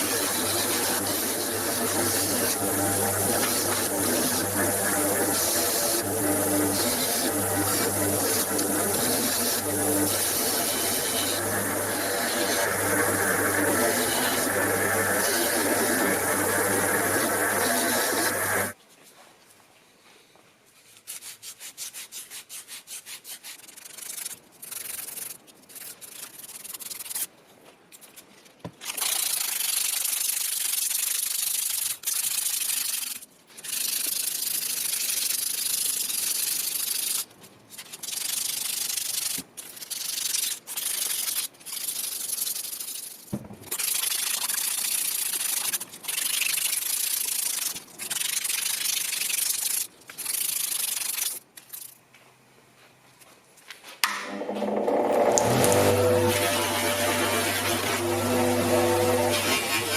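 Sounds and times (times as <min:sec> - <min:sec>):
hand sanding rusty metal: 0:00.0 - 0:18.8, 0:55.8 - 0:59.9.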